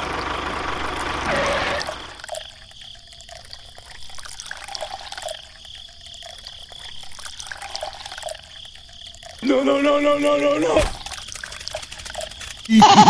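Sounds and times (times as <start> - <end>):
water trickling and dripping: 1.8 - 12.7
small clicks: 10.8 - 12.7.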